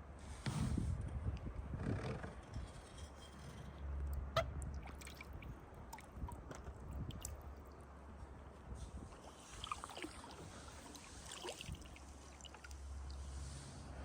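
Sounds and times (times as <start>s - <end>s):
wind rumble on microphone: 0.1s - 7.6s, 8.2s - 9.4s
water drips and splashes: 4.5s - 8.0s, 9.0s - 13.5s
paddle swishing through water: 8.7s - 13.7s.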